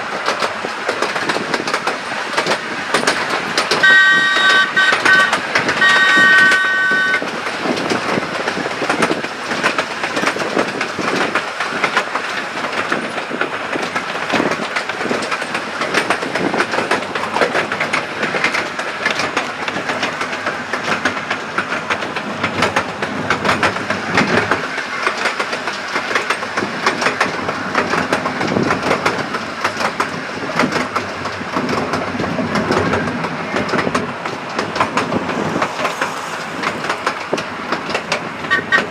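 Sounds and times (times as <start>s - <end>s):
train wheels clattering on track: 0.0s - 38.9s
train whistle: 3.8s - 7.2s.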